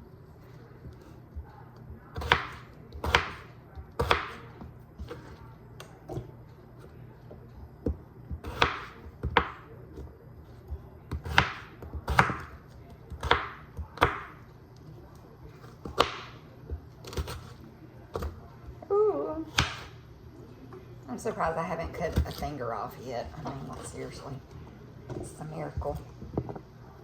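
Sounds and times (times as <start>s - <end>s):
knife chopping on cutting board: 2.2s - 5.4s, 7.8s - 10.1s, 11.1s - 14.4s, 15.6s - 16.4s, 19.5s - 19.9s.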